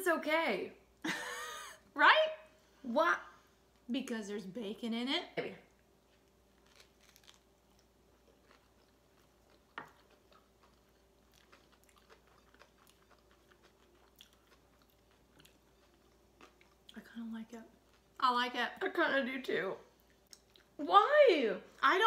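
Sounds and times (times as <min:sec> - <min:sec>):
chewing and biting a sandwich: 0:06.0 - 0:17.0
crunchy bacon clicks: 0:06.3 - 0:16.9.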